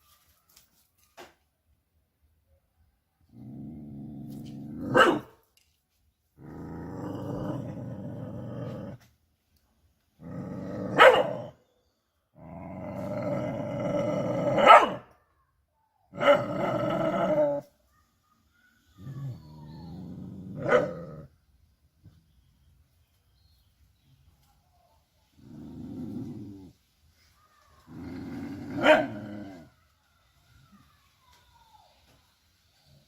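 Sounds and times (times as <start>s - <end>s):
dog growling: 3.3s - 5.1s, 6.4s - 9.0s, 10.2s - 11.5s, 12.4s - 14.7s, 16.2s - 17.6s, 19.0s - 21.3s, 25.4s - 26.8s, 27.8s - 29.7s
dog barking: 4.8s - 5.4s, 10.9s - 11.6s, 14.5s - 15.1s, 20.6s - 21.0s, 28.8s - 29.2s.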